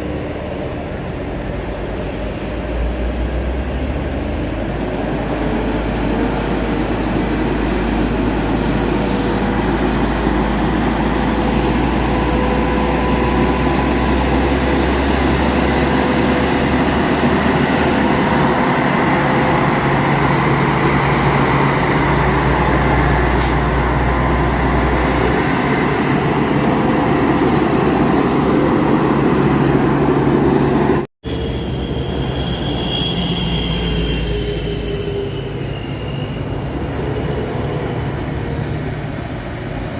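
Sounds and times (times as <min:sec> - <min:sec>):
diesel truck engine running: 0:00.0 - 0:31.1
high wavering squeal: 0:31.3 - 0:39.3.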